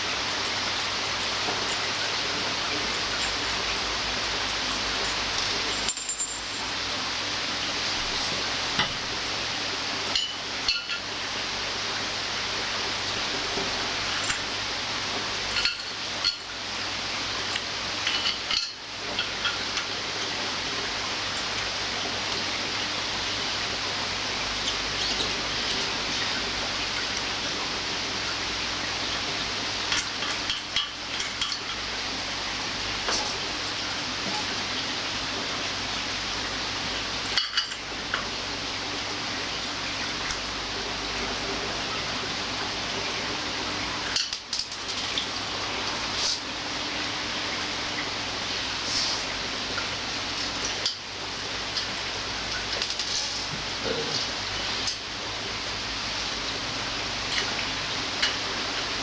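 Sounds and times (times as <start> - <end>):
steady hiss: 0.0 - 59.0
small metal parts clinking: 5.4 - 6.8.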